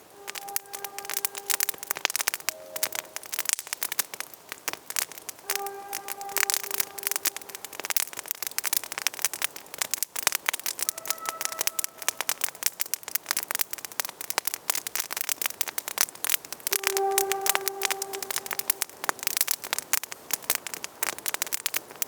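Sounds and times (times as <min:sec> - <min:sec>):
steady whistling tone: 0:00.0 - 0:03.5, 0:05.4 - 0:07.8, 0:10.9 - 0:12.4, 0:16.7 - 0:19.4
campfire crackling and popping: 0:00.0 - 0:22.0.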